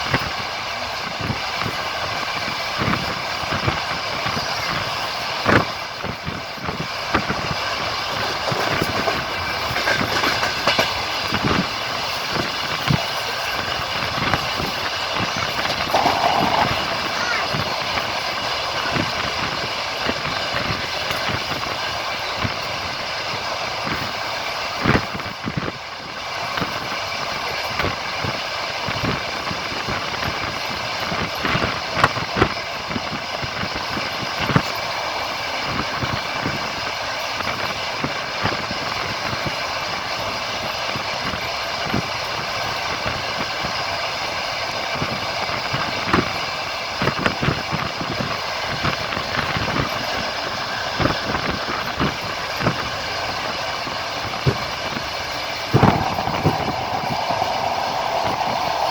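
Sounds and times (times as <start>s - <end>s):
train running rumble: 0.0s - 58.9s
wheels clacking over rail joints: 7.2s - 19.2s.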